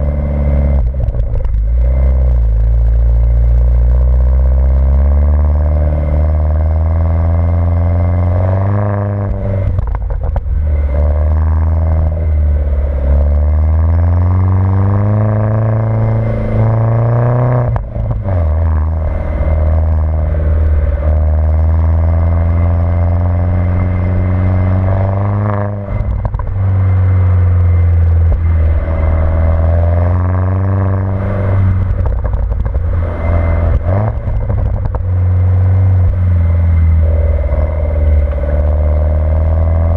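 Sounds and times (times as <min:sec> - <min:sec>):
car engine revving through gears: 0:00.0 - 0:39.9.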